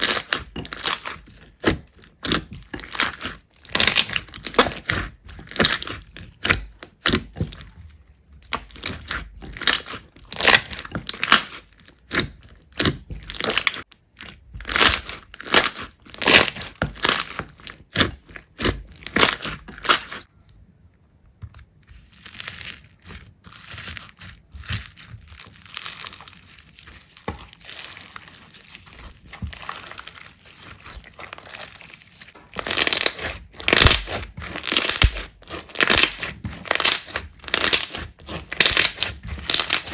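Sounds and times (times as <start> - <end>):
slime squishing: 0.0 - 39.9
slime popping: 22.1 - 39.9.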